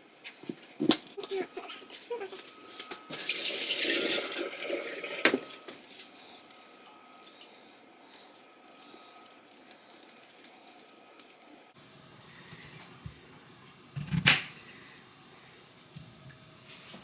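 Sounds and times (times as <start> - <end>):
faint high hum: 0.0 - 17.0
utensils and dishes rattling: 8.2 - 11.5.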